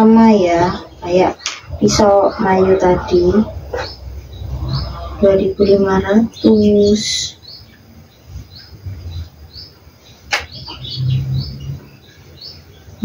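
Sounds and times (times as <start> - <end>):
small bird chirping: 0.0 - 13.0
sharp click: 10.3 - 10.5.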